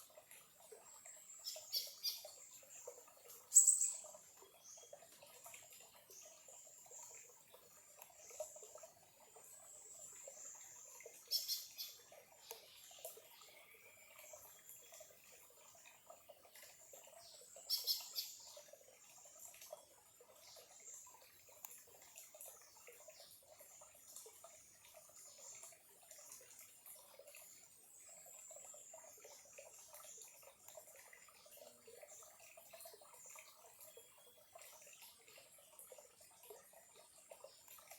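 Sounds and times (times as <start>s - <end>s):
stream trickling: 0.0s - 37.9s
birds chirping: 3.3s - 4.8s.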